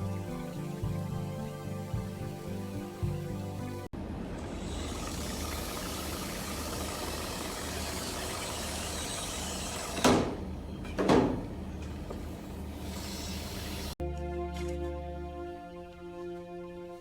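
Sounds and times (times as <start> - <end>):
steady mechanical hum: 4.0 - 14.0.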